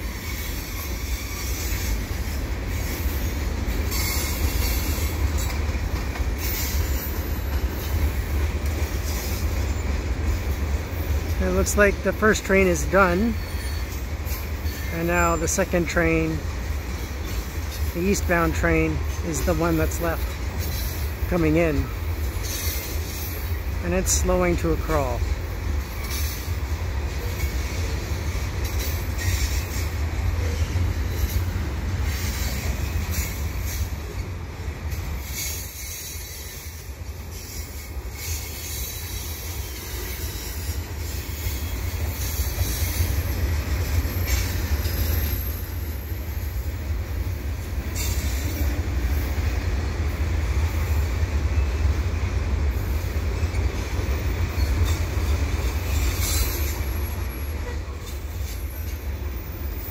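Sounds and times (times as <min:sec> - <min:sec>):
train wheels rumbling on track: 0:00.0 - 0:59.9
wheel squeal: 0:13.4 - 0:14.0, 0:54.5 - 0:59.9.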